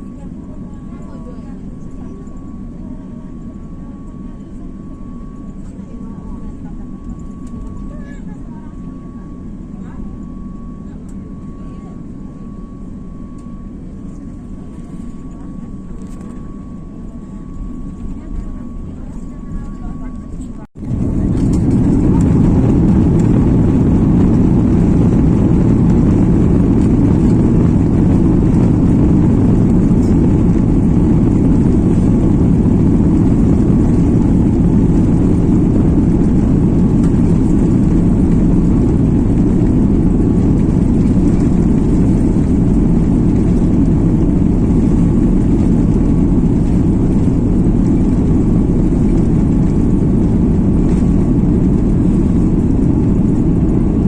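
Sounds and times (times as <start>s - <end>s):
jet engines and rushing air: 1.6s - 54.0s.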